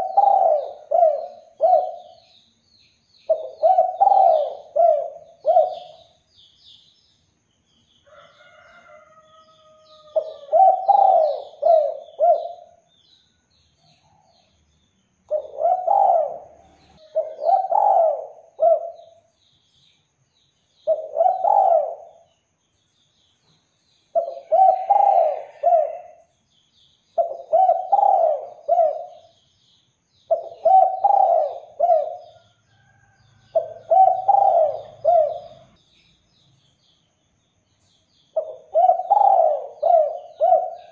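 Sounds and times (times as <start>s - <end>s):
dove cooing: 0.0s - 2.2s, 3.3s - 6.2s, 10.0s - 12.8s, 15.3s - 19.3s, 20.8s - 22.3s, 24.1s - 26.3s, 27.2s - 29.4s, 30.3s - 32.5s, 33.5s - 35.8s, 38.4s - 40.9s
small birds chirping: 0.0s - 40.9s.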